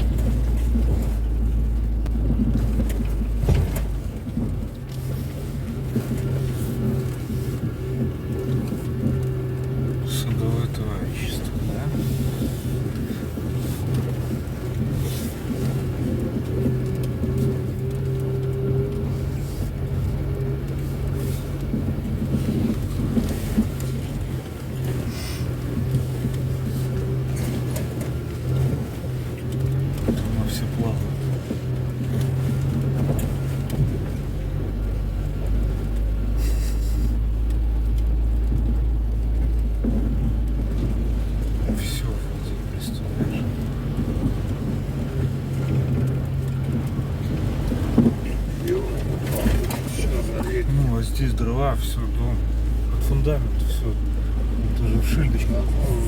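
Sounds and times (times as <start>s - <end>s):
car engine hum: 0.0s - 56.0s
road noise: 0.0s - 56.0s.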